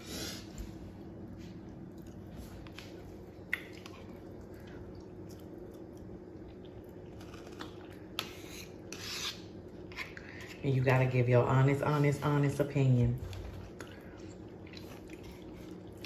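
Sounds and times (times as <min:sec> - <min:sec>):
chewing and mouth sounds: 0:01.6 - 0:08.2, 0:13.3 - 0:16.0.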